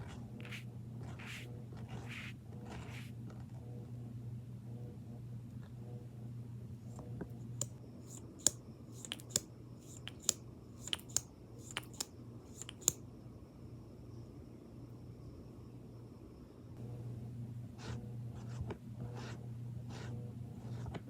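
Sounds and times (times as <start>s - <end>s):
steady low hum: 0.0s - 21.0s
tapping clicks on makeup items: 8.4s - 13.0s.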